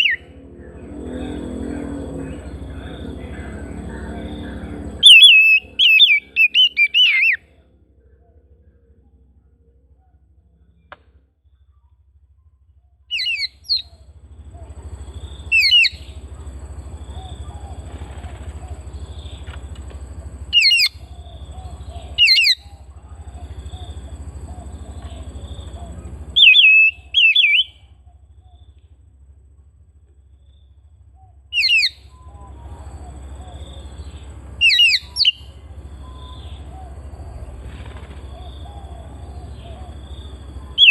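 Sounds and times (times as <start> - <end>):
bird whistled calls: 0.0 - 0.3, 4.2 - 7.5, 13.1 - 16.2, 20.5 - 28.8, 31.2 - 40.9
low steady hum: 0.0 - 40.9.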